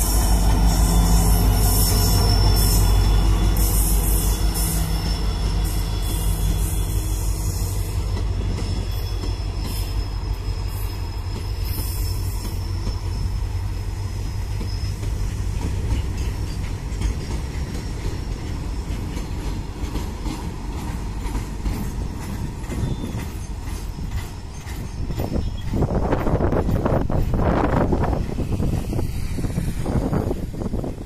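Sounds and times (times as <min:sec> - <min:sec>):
thin high wheel squeal: 0:00.0 - 0:19.4, 0:21.9 - 0:26.5
train wheels rumbling on rails: 0:00.0 - 0:31.0.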